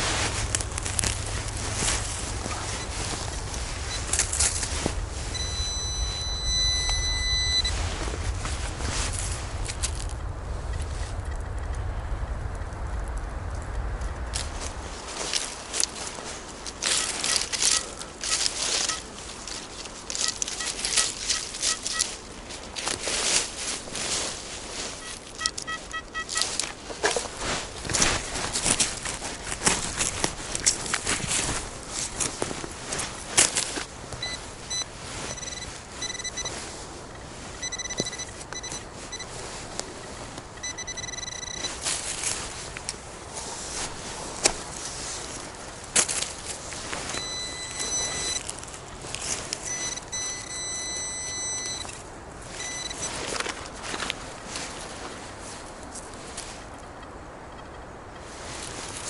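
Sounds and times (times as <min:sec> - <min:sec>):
twigs snapping: 0:00.0 - 0:05.1, 0:12.8 - 0:23.5, 0:26.3 - 0:34.2
footsteps in dry leaves: 0:00.0 - 0:11.2, 0:13.8 - 0:56.8, 0:58.2 - 0:59.0
metal detector tone: 0:01.8 - 0:08.0, 0:16.8 - 0:22.2, 0:25.0 - 0:26.7, 0:34.2 - 0:41.9, 0:47.0 - 0:48.5, 0:49.6 - 0:53.4
pitched beeps: 0:05.3 - 0:07.8, 0:17.0 - 0:19.0, 0:19.6 - 0:22.0, 0:25.0 - 0:26.5, 0:34.2 - 0:39.3, 0:40.6 - 0:41.8, 0:47.1 - 0:48.4, 0:49.7 - 0:51.9, 0:52.6 - 0:53.1.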